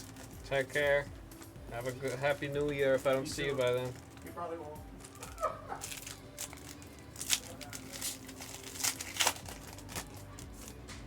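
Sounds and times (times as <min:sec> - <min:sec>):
foil wrappers crinkling and tearing: 0:00.0 - 0:04.4, 0:05.0 - 0:10.8.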